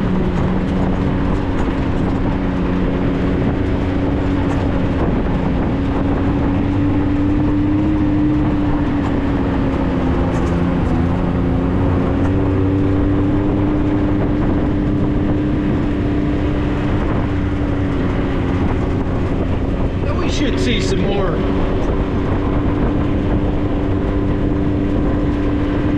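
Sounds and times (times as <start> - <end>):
road noise: 0.0 - 25.9
vehicle engine drone: 0.0 - 25.9.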